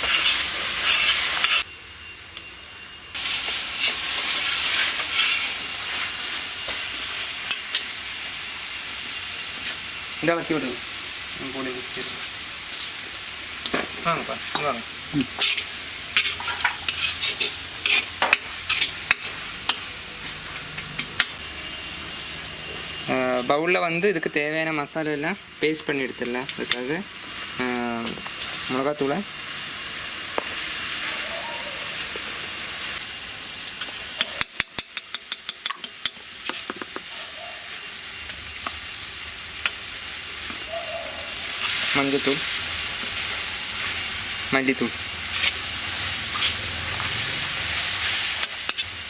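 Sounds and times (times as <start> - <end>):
spoon scraping a pan: 0.0 - 1.6, 3.4 - 6.1, 13.6 - 20.0, 45.3 - 48.9
hiss of frying: 0.0 - 49.0
masala sizzling in a pan: 0.0 - 49.0
metal spoon clinking against bowl: 14.5 - 14.8.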